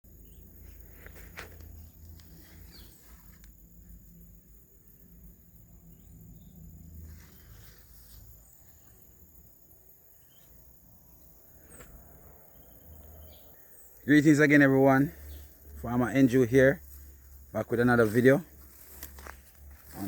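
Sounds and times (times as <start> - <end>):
insects trilling: 0.1 - 20.0
soft rustles and clicks: 0.6 - 3.6, 18.2 - 20.0.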